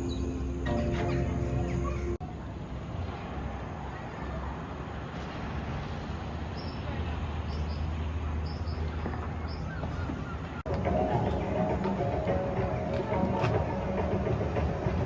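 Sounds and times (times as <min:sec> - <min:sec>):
small birds chirping: 0:06.5 - 0:12.4.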